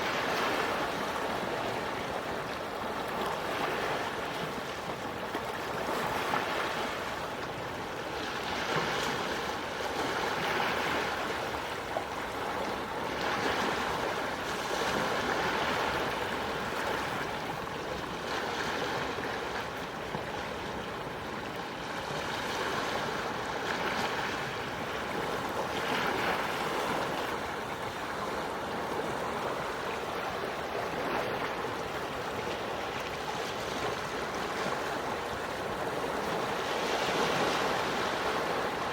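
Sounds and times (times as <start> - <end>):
sea waves washing ashore: 0.0 - 38.9.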